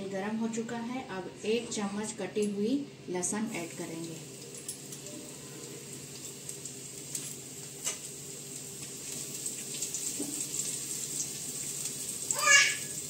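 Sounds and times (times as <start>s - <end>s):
garlic sizzling in oil: 3.4s - 13.0s.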